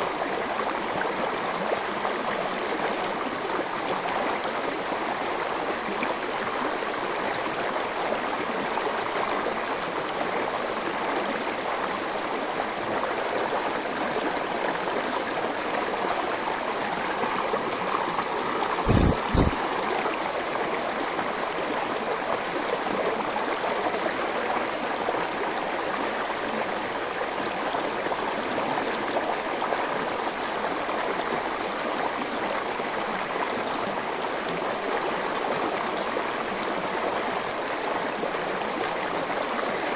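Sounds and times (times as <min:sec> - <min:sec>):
forest stream flowing: 0:00.0 - 0:39.9
low thumps: 0:18.8 - 0:19.6.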